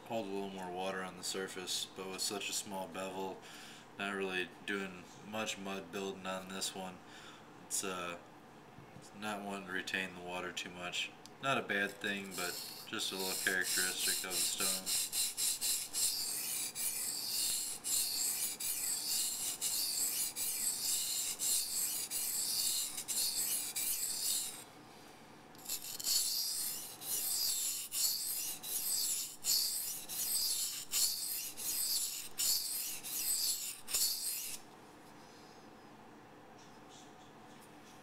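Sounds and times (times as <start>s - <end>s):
knife scraping on whetstone: 11.9s - 24.6s, 25.6s - 34.6s.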